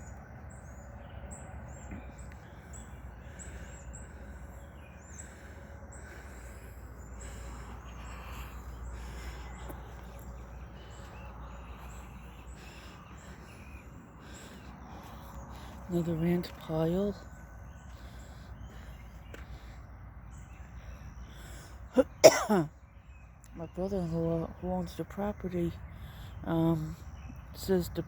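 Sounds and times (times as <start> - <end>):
steady low rumble: 0.0 - 21.9
birds chirping: 0.0 - 28.0.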